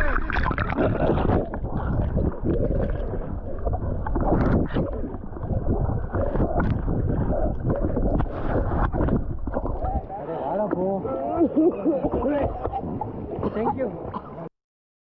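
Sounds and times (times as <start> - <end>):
water splashing: 0.0 - 14.4.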